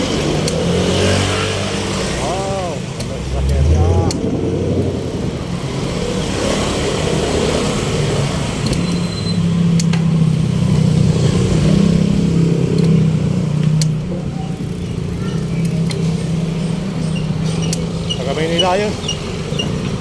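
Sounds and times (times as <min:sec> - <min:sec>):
road noise rush: 0:00.0 - 0:20.0
vehicle engine running: 0:00.0 - 0:20.0.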